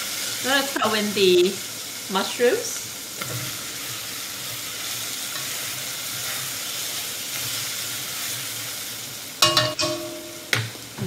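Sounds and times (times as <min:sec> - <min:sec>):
mushrooms sizzling in a pan: 0:00.0 - 0:11.0
spatula stirring in a pan: 0:03.1 - 0:10.0.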